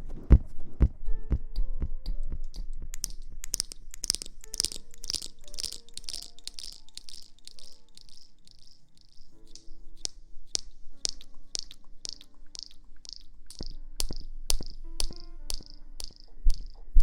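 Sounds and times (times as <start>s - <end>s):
soft low thumps: 0.0s - 6.9s
faint steady tones: 1.0s - 17.0s.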